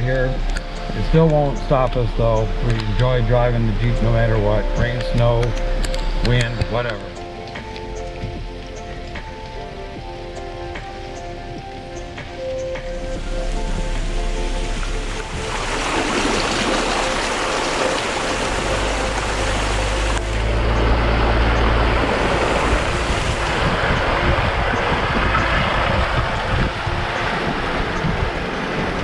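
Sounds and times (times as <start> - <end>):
low engine drone: 0.0 - 29.0
rain: 0.0 - 29.0
tyres rushing on wet ground: 6.2 - 29.0.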